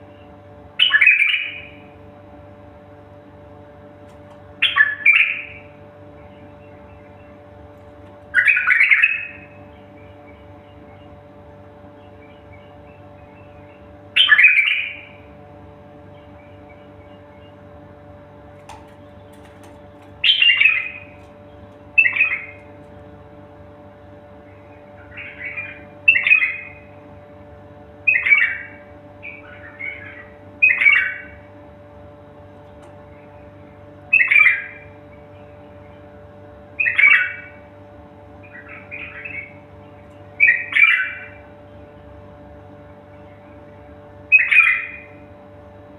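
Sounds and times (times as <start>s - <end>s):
bird calling: 0.0s - 2.0s, 4.5s - 27.0s, 28.0s - 45.3s
steady low hum: 0.0s - 45.9s
songbird chirping: 0.1s - 1.8s, 4.6s - 15.3s, 15.9s - 18.0s, 18.6s - 23.3s, 24.4s - 26.9s, 28.1s - 31.5s, 32.6s - 36.1s, 36.8s - 37.7s, 38.4s - 42.2s, 42.8s - 45.2s.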